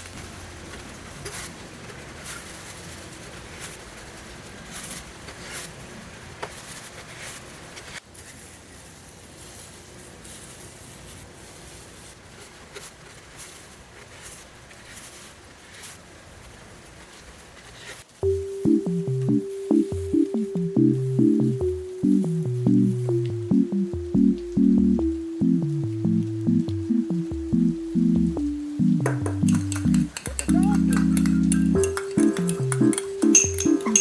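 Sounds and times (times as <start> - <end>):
soft rustling: 0.0 - 23.5
steady background hiss: 0.0 - 34.0.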